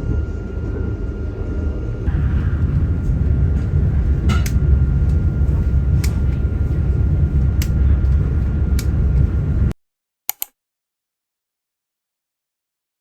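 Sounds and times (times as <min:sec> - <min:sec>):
jet engine and airflow rumble: 0:00.0 - 0:09.8.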